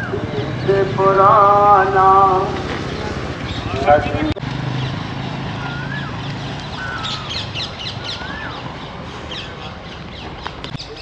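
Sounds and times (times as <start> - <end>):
birds whistled calls: 2.8 - 11.0.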